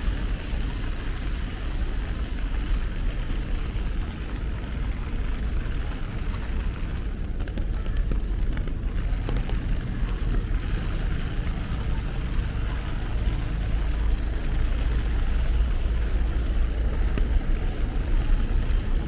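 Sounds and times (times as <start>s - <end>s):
city street traffic rumble: 0.0s - 19.0s
rain hiss: 9.7s - 19.0s.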